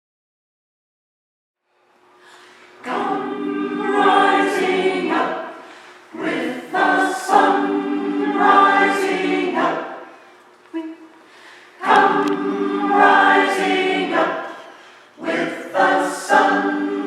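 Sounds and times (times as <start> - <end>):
choir singing: 2.8 - 11.0, 11.8 - 17.0.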